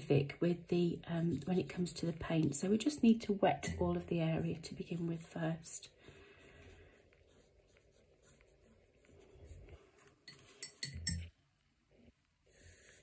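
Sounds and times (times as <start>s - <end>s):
paintbrush clinking against pot: 10.2s - 11.4s.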